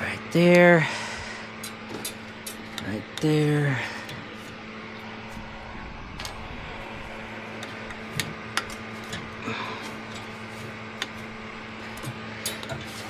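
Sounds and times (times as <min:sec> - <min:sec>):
low mechanical hum: 0:00.0 - 0:13.0
clicks and taps of tools: 0:07.6 - 0:13.0.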